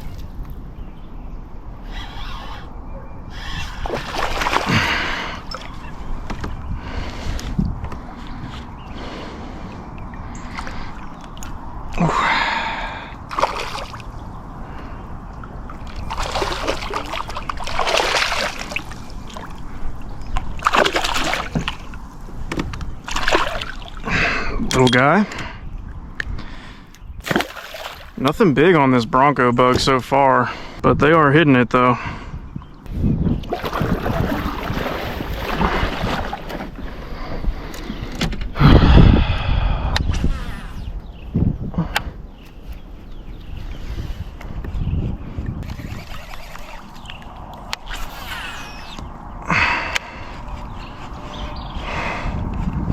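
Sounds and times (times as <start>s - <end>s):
fish splashing water: 3.8s - 5.8s, 13.3s - 14.1s, 15.7s - 19.8s, 20.4s - 21.9s, 23.0s - 24.1s, 27.2s - 28.2s, 33.4s - 36.7s.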